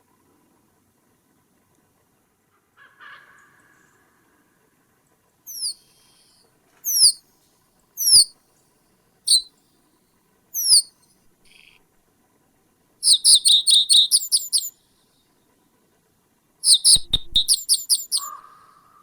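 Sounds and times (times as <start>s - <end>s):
bird calling sharp high notes: 5.5s - 6.3s, 6.9s - 7.2s, 8.0s - 8.3s, 9.3s - 9.5s, 10.6s - 10.9s, 13.0s - 14.7s, 16.6s - 18.8s.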